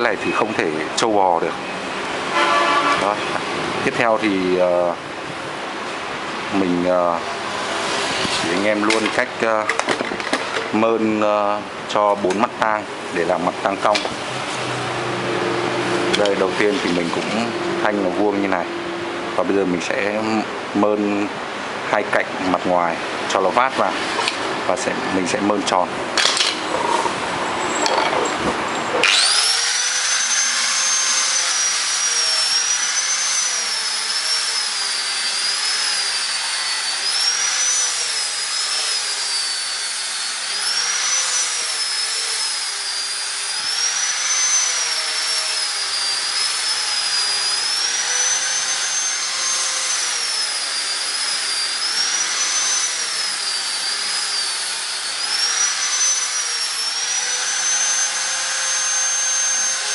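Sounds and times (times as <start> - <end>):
hand grinder sanding metal bar: 29.0 - 59.9.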